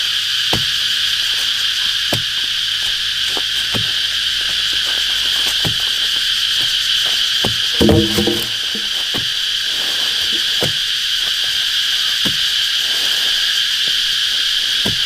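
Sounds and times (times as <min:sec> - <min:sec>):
high insect chorus: 0:00.0 - 0:15.0
short knocks: 0:07.4 - 0:09.0.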